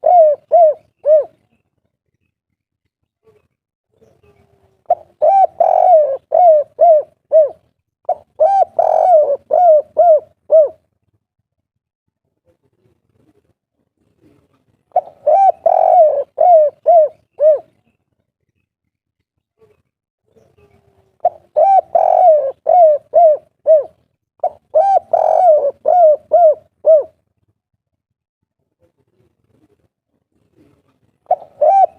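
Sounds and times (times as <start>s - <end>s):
dove cooing: 0.0s - 1.5s, 4.2s - 10.8s, 14.2s - 17.8s, 20.6s - 27.2s, 30.5s - 31.9s.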